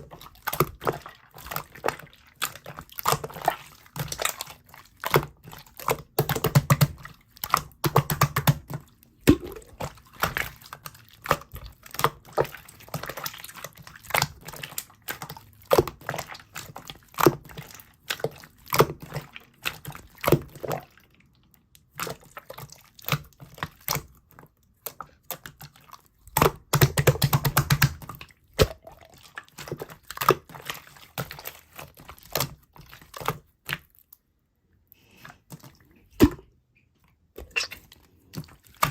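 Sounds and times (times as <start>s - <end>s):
slime squishy stretching: 0.0s - 21.0s, 35.1s - 38.9s
slime clicking and popping: 5.9s - 10.4s.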